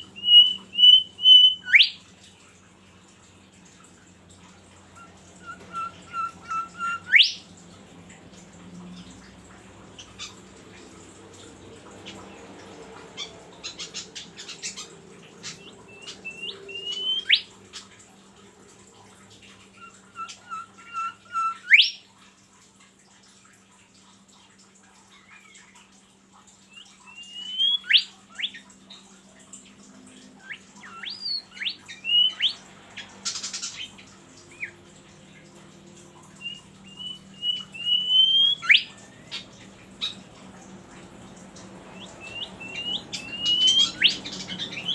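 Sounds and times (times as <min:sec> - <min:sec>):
bird singing: 0:00.0 - 0:02.0, 0:05.0 - 0:07.5, 0:13.2 - 0:17.5, 0:19.8 - 0:22.0, 0:26.7 - 0:29.0, 0:30.4 - 0:34.8, 0:36.4 - 0:40.2, 0:41.9 - 0:44.9
faint steady hum: 0:00.0 - 0:44.9.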